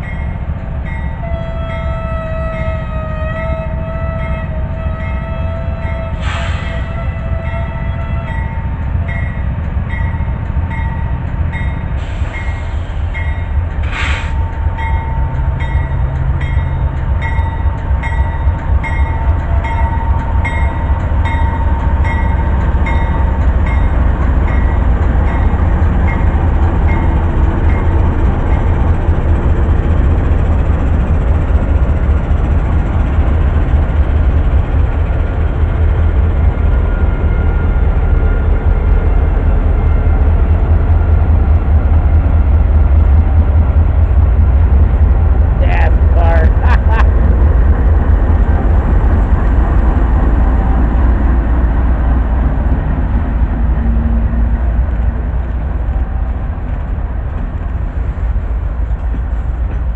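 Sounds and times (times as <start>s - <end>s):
locomotive bell ringing: 0.0s - 6.2s, 7.4s - 13.6s, 14.6s - 28.8s
diesel locomotives rumbling: 0.0s - 59.9s.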